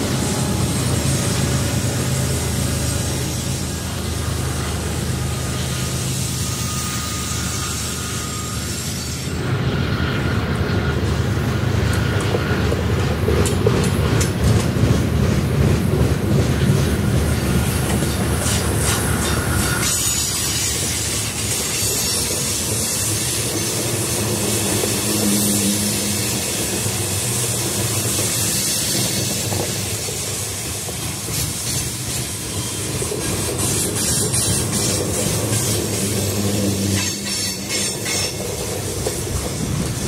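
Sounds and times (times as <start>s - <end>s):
train wheels clacking over rails: 0.0s - 40.0s.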